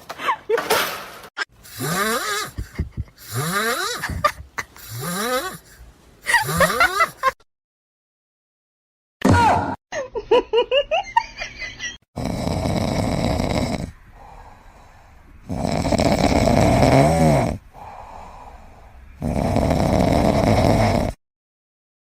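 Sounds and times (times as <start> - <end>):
pet snoring loudly: 1.6 - 4.2, 4.8 - 7.3, 12.2 - 21.2.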